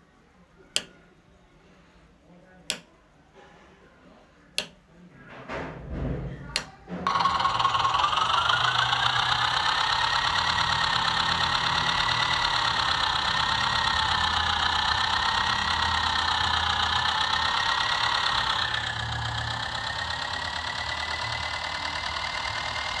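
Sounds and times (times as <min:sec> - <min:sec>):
toy electric motor whining: 0:06.5 - 0:23.0.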